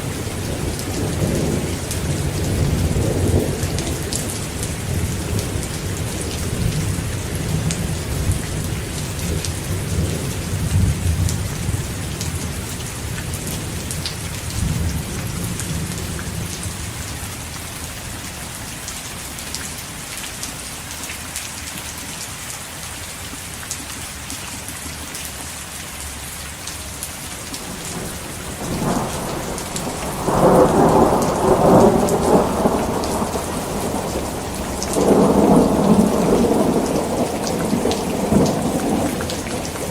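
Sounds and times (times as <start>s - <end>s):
thunder rumbling: 0.0s - 16.6s, 27.6s - 39.9s
heavy rain falling: 0.0s - 39.9s
thunder crack: 27.6s - 39.9s.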